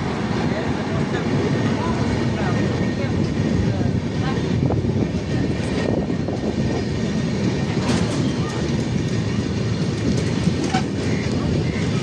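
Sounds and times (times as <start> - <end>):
train wheels rumbling on rail: 0.0 - 12.0
rail joints clattering: 4.4 - 12.0.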